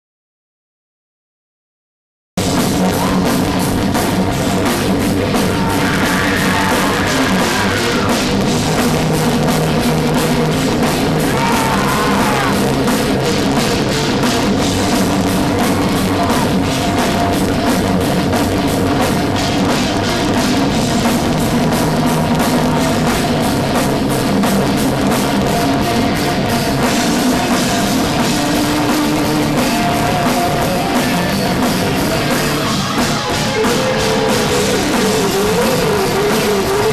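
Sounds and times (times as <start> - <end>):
heavy metal band playing live: 2.4 - 36.9.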